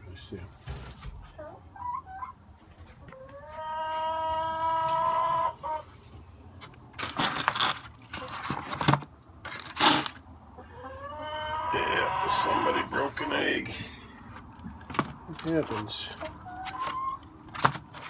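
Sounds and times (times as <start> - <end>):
loud scuffling and rustling: 0.5 - 1.4
hen clucking: 1.0 - 6.0, 10.5 - 14.4, 15.4 - 17.4
hen squawking: 10.7 - 14.0.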